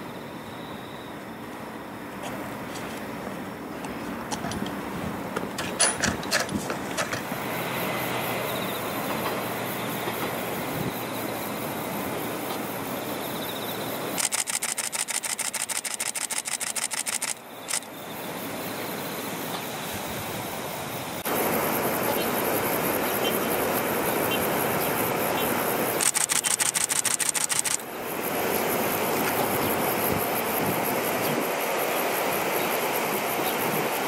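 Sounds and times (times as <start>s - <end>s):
distant diesel railcar rumble: 0.2s - 15.9s
rapid evenly spaced clicking: 14.2s - 17.9s, 26.0s - 27.8s.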